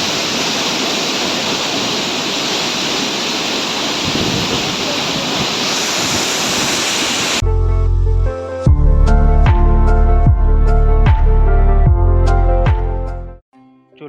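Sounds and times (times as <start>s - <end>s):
waterfall rushing: 0.0s - 7.4s
music: 7.4s - 14.0s.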